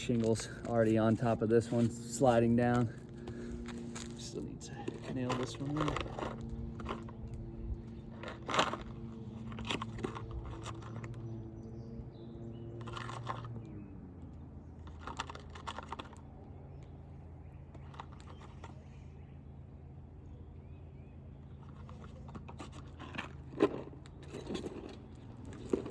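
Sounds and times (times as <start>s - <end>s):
shingles crunching and scraping: 0.0s - 11.2s, 21.7s - 25.9s.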